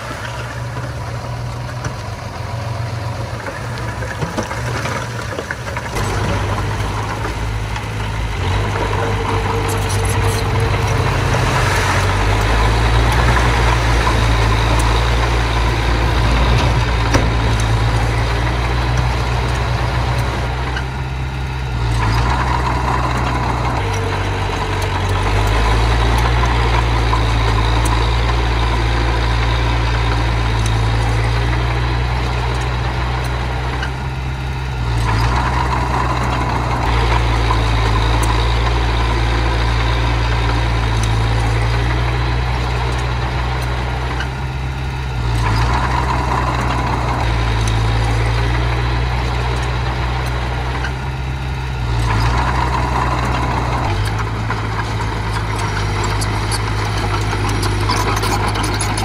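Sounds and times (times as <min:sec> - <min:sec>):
earthmoving machine diesel engine: 0:00.0 - 0:59.0.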